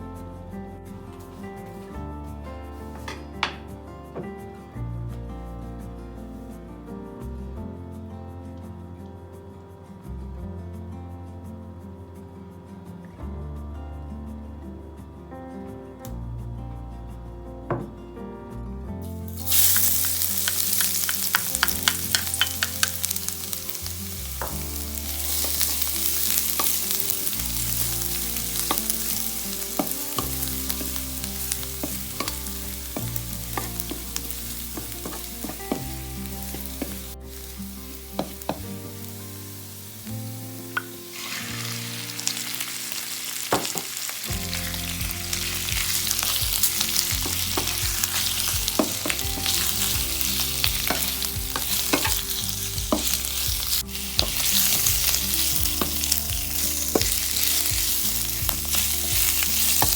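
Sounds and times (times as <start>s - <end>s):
food sizzling in a pan: 19.2s - 59.9s.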